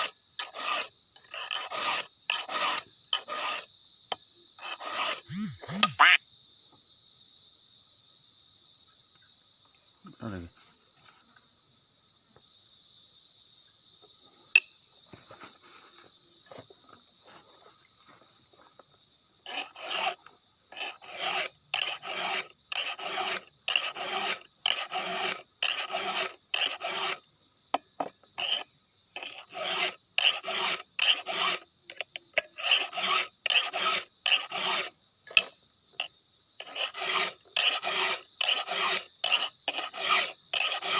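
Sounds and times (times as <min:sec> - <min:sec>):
file scraping chainsaw chain: 0:00.0 - 0:03.7, 0:04.6 - 0:06.2, 0:19.4 - 0:27.2, 0:28.0 - 0:40.9
high insect whine: 0:00.0 - 0:40.9.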